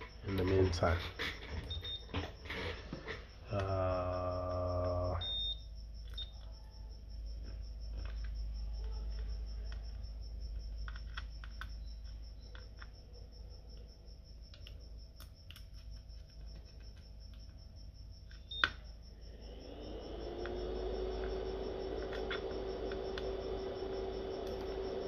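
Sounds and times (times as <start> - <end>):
man humming: 3.4 - 5.2.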